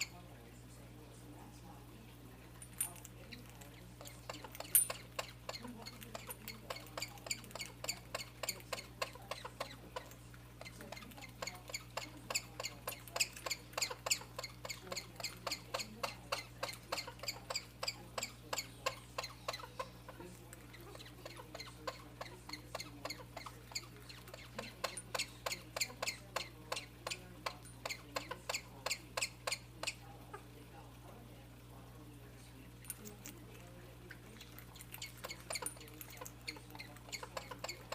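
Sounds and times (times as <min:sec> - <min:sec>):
pet animal chirping squeaks: 0:04.0 - 0:30.0, 0:34.7 - 0:37.9.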